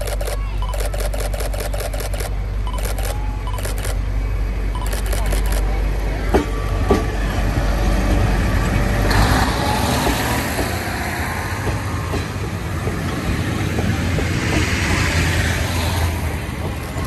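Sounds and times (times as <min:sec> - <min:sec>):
diesel railcar droning: 0:00.0 - 0:17.0.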